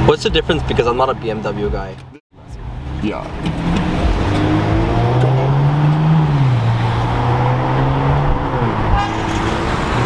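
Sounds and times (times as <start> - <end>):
car engine droning: 2.4 - 10.0.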